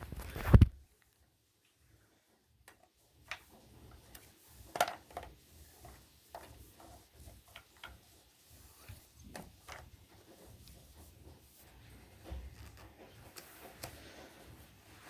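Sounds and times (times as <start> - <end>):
plastic parts clicking and knocking: 2.6 - 6.5.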